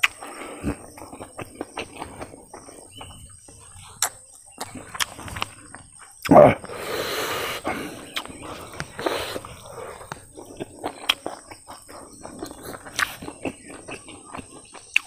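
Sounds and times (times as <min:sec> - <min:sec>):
man chewing food: 0:00.0 - 0:15.0
breathy rushes: 0:06.5 - 0:10.3.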